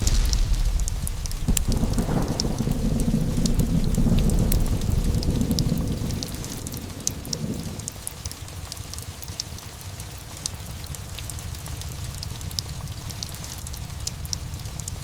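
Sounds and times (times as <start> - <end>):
thunder rumble: 0.0 - 8.7
log fire crackling: 0.0 - 15.0
steady rain: 0.0 - 15.0.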